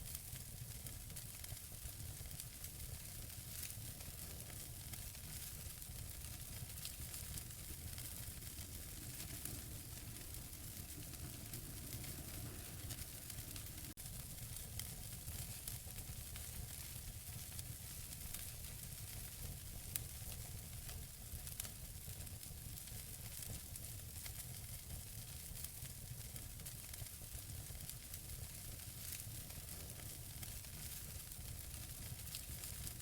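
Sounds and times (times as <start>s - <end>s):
logs burning with crackling: 0.0s - 33.0s
low fire rumble: 0.0s - 33.0s
loud fire pops: 2.2s - 20.6s.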